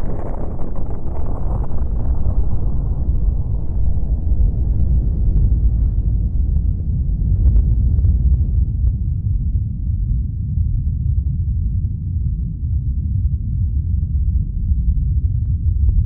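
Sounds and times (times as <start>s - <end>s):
large explosion rumble: 0.0s - 11.8s.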